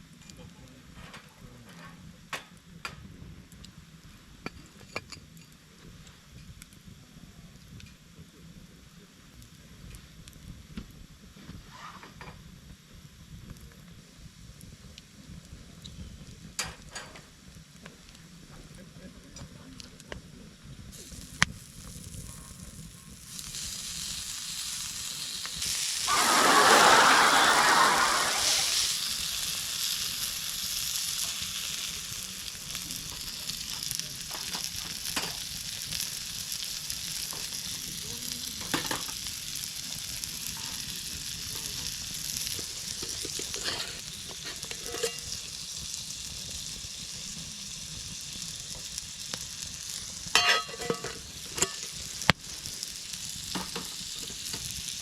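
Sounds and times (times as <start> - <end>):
food sizzling in a pan: 0.0 - 19.6, 20.2 - 55.0.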